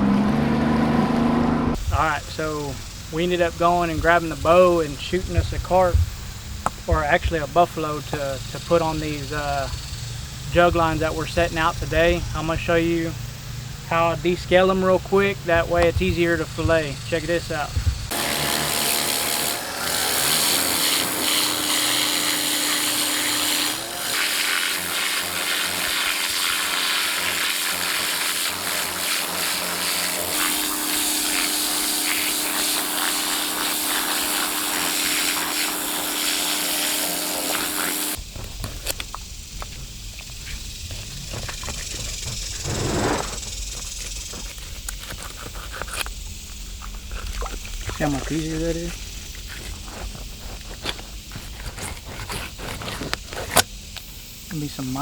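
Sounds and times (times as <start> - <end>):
motor tool hissing and humming: 0.0 - 38.2, 40.9 - 43.8
scraping and handling noise: 38.2 - 54.0.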